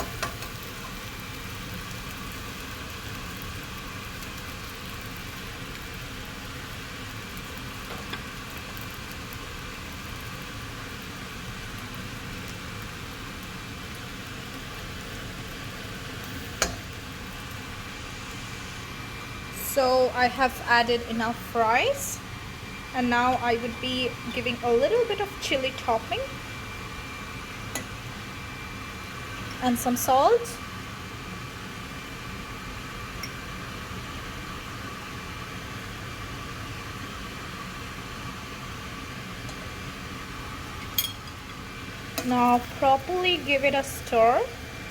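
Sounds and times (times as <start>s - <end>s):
steady hiss: 0.0s - 26.1s
faint hum: 0.0s - 44.9s
rice and vegetables sizzling in a pan: 0.0s - 44.9s.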